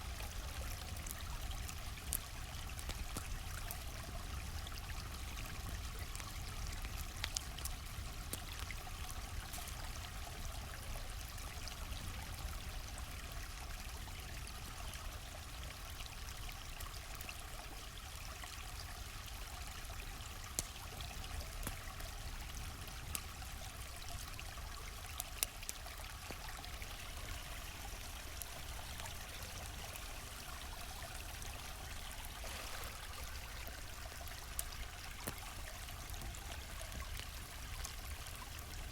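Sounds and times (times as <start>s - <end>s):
campfire crackling and popping: 0.0s - 15.0s, 18.4s - 38.9s
stream running: 0.0s - 38.9s.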